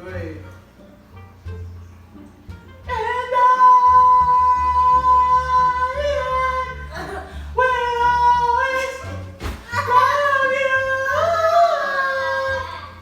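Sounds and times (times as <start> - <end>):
girl singing long notes: 2.9 - 13.0.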